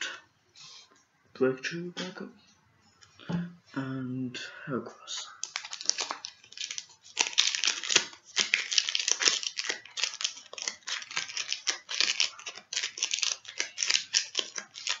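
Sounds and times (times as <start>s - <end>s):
foil wrapper crinkling and tearing: 5.4s - 15.0s.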